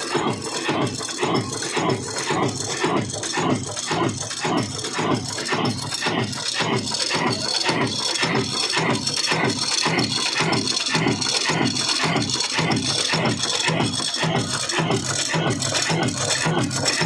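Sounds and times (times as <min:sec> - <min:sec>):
diesel engine running slowly: 0:00.0 - 0:17.0
mechanical rattle: 0:00.0 - 0:17.0.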